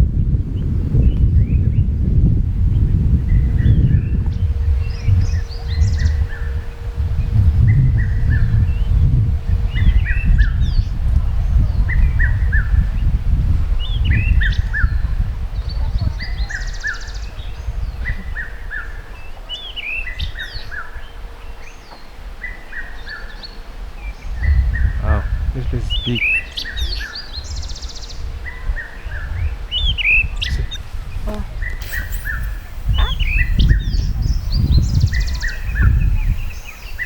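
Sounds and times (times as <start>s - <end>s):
low rumble on microphone: 0.0s - 16.8s, 29.4s - 37.0s
high bird chirps: 31.8s - 37.0s.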